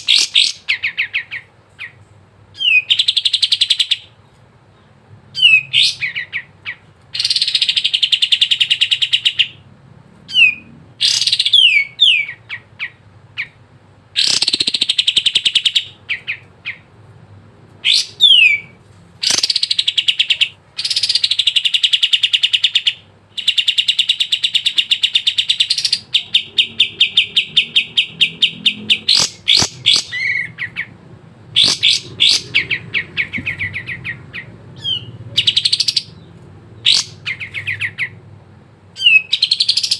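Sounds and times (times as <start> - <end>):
bird singing fast trills: 0.0 - 4.2, 5.3 - 9.6, 10.3 - 16.9, 17.8 - 38.3, 38.9 - 39.9.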